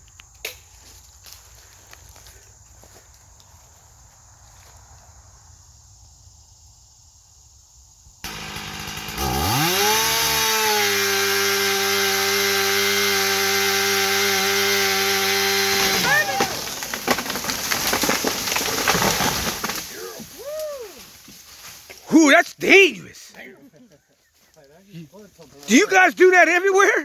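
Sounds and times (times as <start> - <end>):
chainsaw running at full throttle: 8.2 - 19.8.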